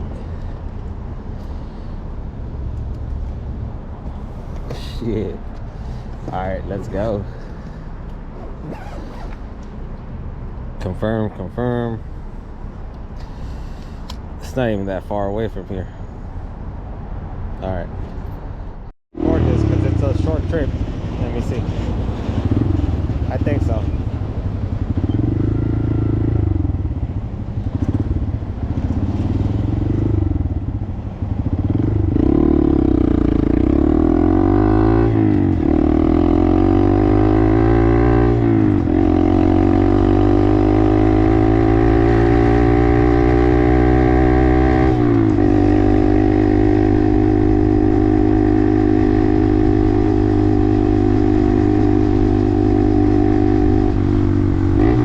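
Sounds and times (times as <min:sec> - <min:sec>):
motorcycle engine accelerating: 0:19.2 - 0:55.0.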